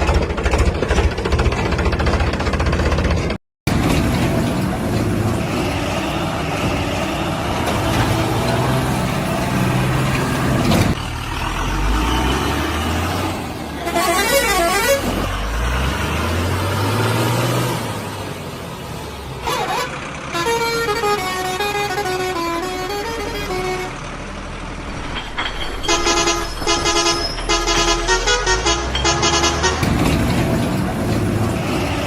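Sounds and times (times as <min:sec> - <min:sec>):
vehicle engines running: 0:00.0 - 0:32.0
warbling horn: 0:25.8 - 0:29.8
horn playing a stepped tune: 0:25.9 - 0:29.8.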